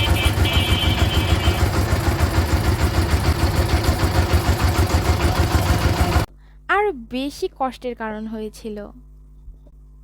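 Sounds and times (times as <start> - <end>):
vehicle engine exhaust pulsing: 0.0 - 6.3.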